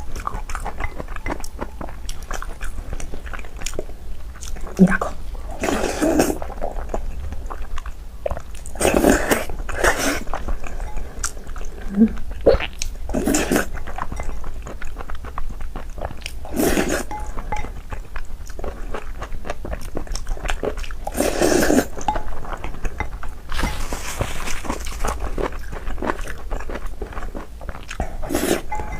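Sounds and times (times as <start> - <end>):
person chewing food: 0.0 - 28.9.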